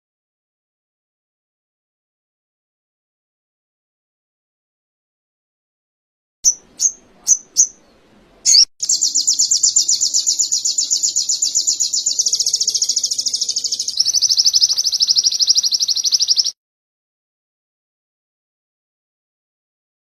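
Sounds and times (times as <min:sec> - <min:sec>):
bird chirping: 0:06.4 - 0:16.6
fast high bird trill: 0:08.5 - 0:16.6.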